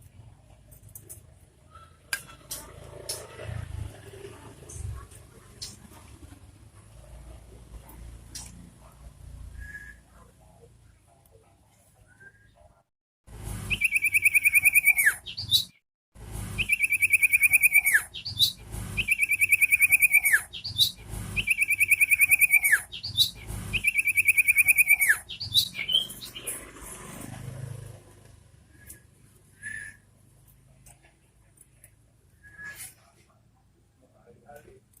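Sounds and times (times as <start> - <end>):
bird trilling song: 13.7 - 15.8, 16.6 - 26.6.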